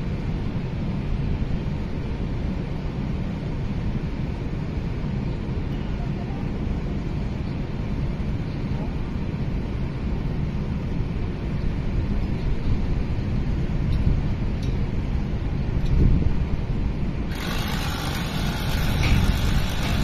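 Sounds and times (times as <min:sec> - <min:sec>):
wind buffeting microphone: 0:07.2 - 0:20.0.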